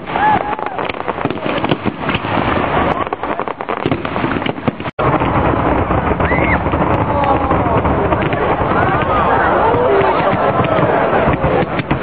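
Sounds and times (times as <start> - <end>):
crowd voices and shouts: 0.0 - 3.8, 5.9 - 12.0
fireworks cracking and banging: 0.0 - 12.0.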